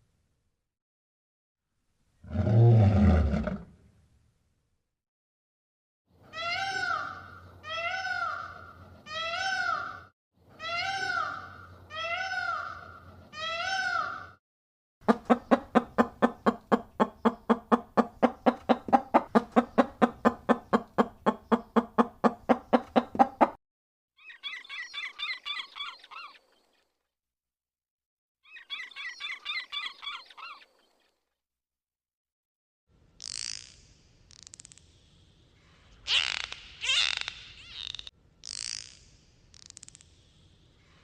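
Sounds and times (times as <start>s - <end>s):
rapid repeated animal calls: 15.0s - 23.6s.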